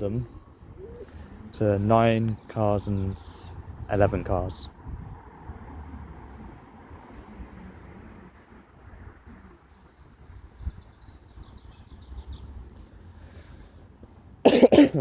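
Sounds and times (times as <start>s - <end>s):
person coughing: 14.5s - 15.0s.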